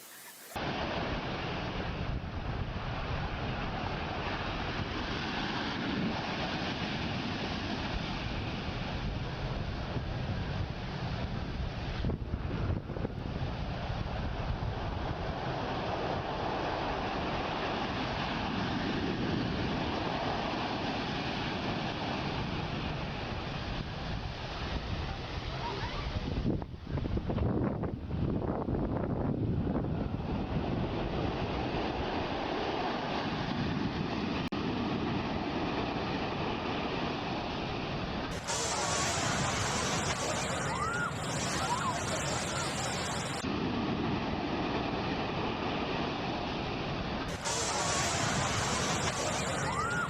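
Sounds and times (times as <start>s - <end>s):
sea waves and surf: 0.0s - 26.4s, 30.4s - 50.0s
wind buffeting microphone: 7.0s - 17.5s, 21.7s - 35.3s.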